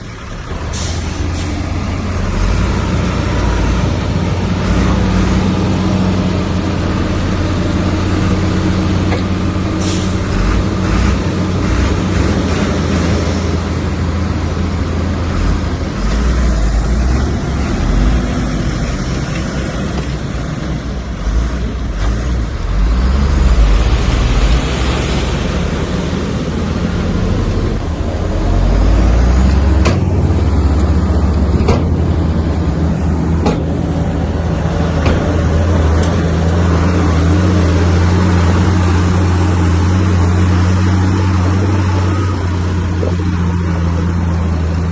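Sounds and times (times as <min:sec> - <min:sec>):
bulldozer diesel engine under load: 0:00.0 - 0:44.9
sharp metallic knocks: 0:29.8 - 0:30.4.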